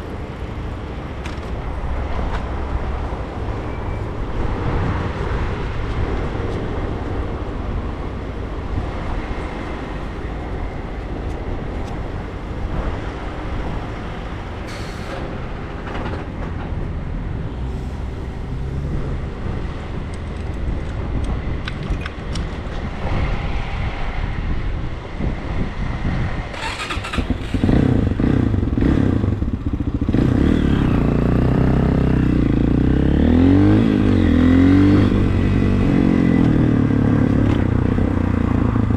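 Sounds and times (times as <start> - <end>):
motorcycle engine revving: 26.6 - 37.7.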